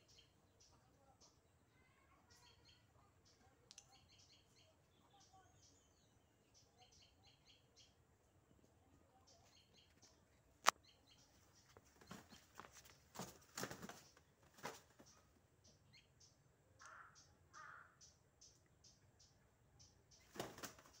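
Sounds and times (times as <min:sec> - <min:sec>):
small birds chirping: 0:00.0 - 0:21.0
roosters rustling and scuffling: 0:09.8 - 0:15.5, 0:20.2 - 0:21.0.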